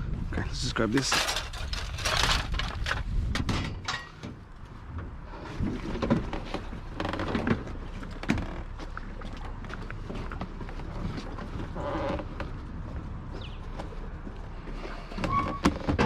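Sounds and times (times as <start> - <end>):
junk knocking and clattering: 1.0 - 5.2.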